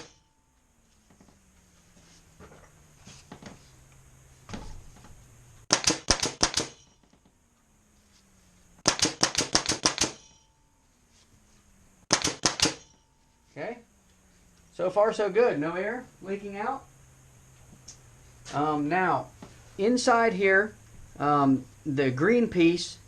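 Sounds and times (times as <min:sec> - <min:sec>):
nail gun sharp cracks: 0:00.0 - 0:00.2, 0:05.7 - 0:07.0, 0:08.8 - 0:10.4, 0:12.1 - 0:12.9.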